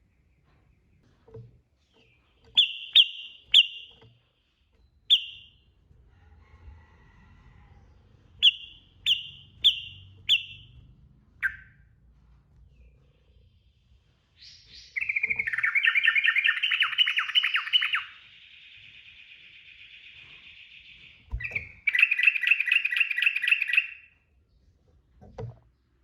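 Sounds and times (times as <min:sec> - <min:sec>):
bird whistled calls: 0:02.6 - 0:03.9, 0:05.1 - 0:05.6, 0:08.4 - 0:10.7, 0:11.4 - 0:11.8, 0:14.4 - 0:24.1.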